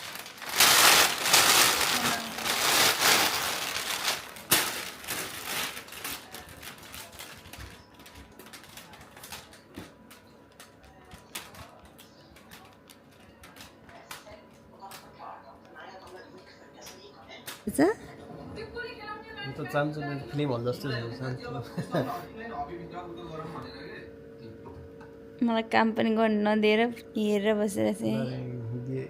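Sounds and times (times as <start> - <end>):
loud rustling and crinkling: 0.0 - 14.2.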